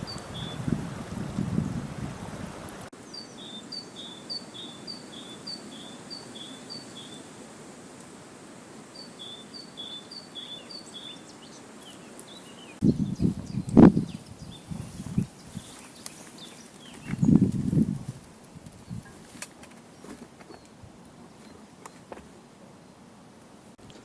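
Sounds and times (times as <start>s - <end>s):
low rumbling wind noise: 0.0s - 2.9s, 12.8s - 15.8s, 16.9s - 19.2s.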